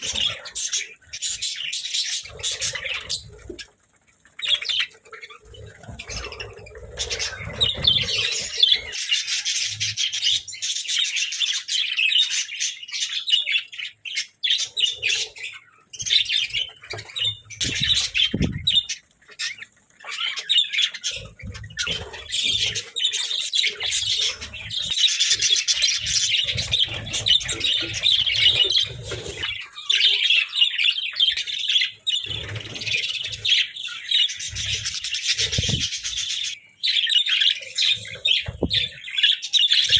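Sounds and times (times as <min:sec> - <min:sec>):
budgerigars chattering: 0:05.8 - 0:39.9.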